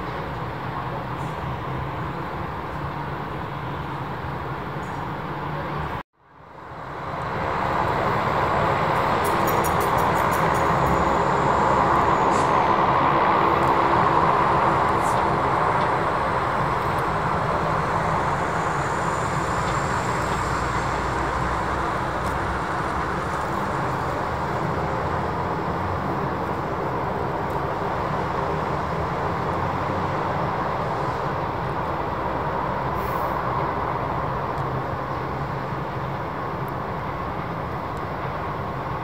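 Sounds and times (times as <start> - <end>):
jet engines roaring: 6.4 - 32.9.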